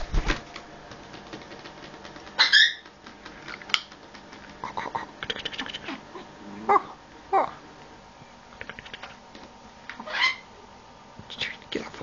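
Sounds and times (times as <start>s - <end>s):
parrot call: 2.4s - 2.8s, 10.0s - 10.5s.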